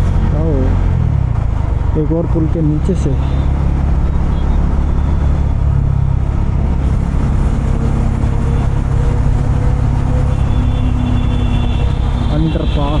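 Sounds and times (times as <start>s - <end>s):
motorcycle engine running: 0.0s - 12.8s.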